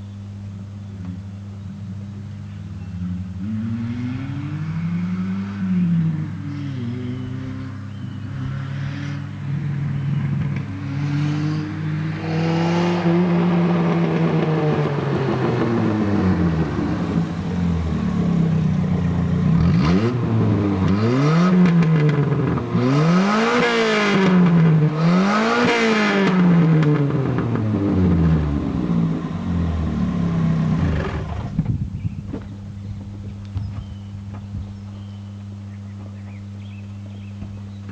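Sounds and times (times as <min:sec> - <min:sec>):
car engine revving loud: 0:02.7 - 0:31.6.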